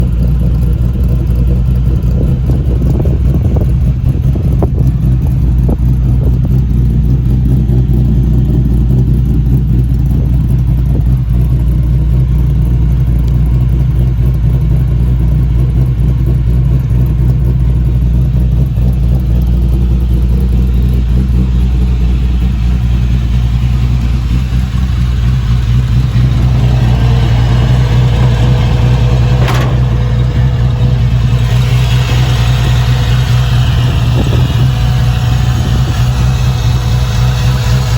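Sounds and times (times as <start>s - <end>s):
car engine idling: 0.0s - 37.9s
steady higher tone: 21.6s - 37.9s.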